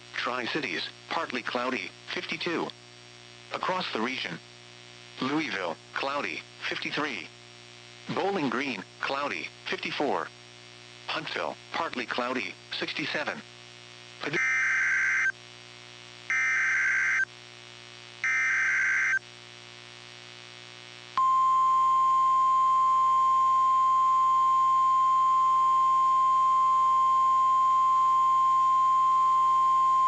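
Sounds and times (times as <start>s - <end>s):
steady warning alarm tone: 14.4s - 15.3s, 16.3s - 17.3s, 18.2s - 19.2s.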